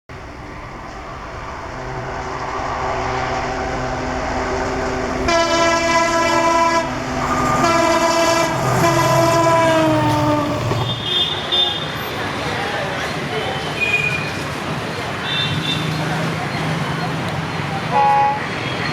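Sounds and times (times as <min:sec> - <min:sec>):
diesel locomotive approaching: 0:00.0 - 0:18.9
train air horn blasts: 0:00.2 - 0:11.7.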